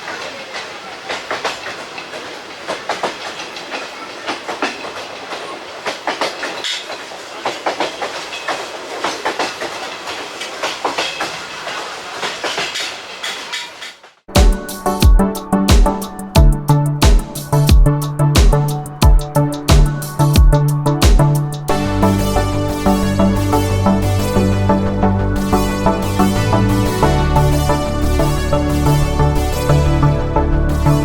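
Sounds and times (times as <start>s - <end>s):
train rumble and rattle: 0.0s - 14.0s
train wheels clattering over rail joints: 0.0s - 14.1s.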